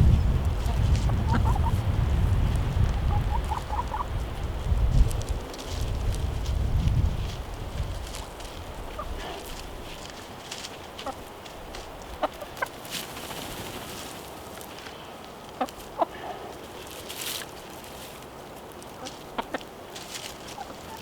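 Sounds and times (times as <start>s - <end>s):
chickens clucking: 0.0s - 6.1s, 7.3s - 21.0s
faint rustling: 4.2s - 15.9s.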